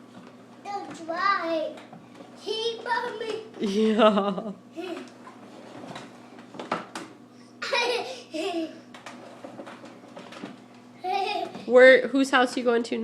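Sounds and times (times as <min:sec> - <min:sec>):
young child laughing: 0:03.6 - 0:05.2, 0:07.5 - 0:08.9, 0:11.0 - 0:11.7.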